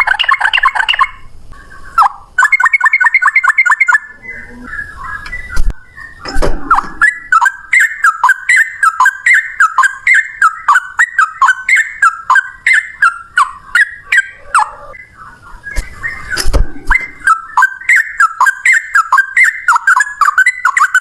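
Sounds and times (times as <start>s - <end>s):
bird singing falling notes: 0.0s - 21.0s
low thump: 5.6s - 7.0s, 16.4s - 17.2s.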